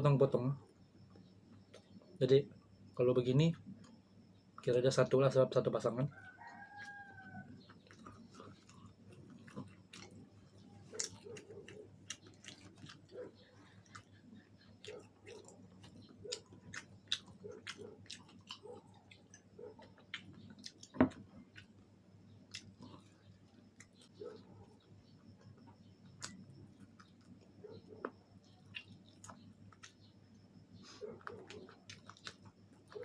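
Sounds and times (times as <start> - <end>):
small crunches: 6.4 - 21.8, 30.8 - 33.0
person chewing chicken wings: 6.6 - 21.8, 22.5 - 24.2, 31.0 - 33.0.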